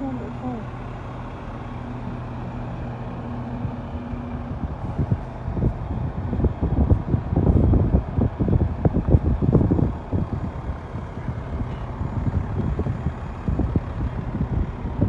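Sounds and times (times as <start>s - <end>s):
garbage trucks idling: 0.0s - 15.0s
wind buffeting microphone: 1.4s - 15.0s.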